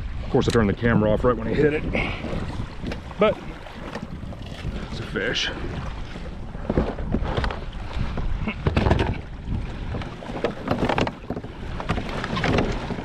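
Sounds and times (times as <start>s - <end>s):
wind buffeting microphone: 0.0s - 13.0s
fish handling knocks and splashes: 6.6s - 9.3s, 9.9s - 13.0s.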